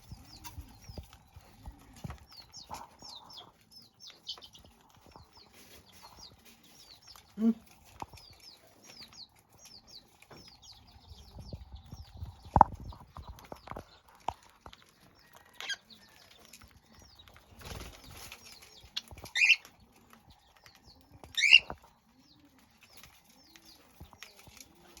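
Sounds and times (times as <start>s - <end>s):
wings flapping: 16.5s - 21.8s
parakeets chirping: 17.0s - 19.8s, 20.5s - 25.0s.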